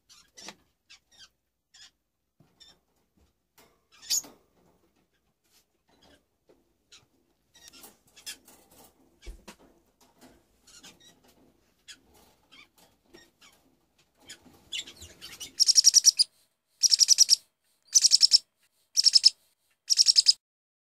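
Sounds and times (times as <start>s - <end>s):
faint clicks and scratches: 2.5s - 15.8s
bird chirping trill: 14.7s - 18.4s, 19.0s - 20.4s.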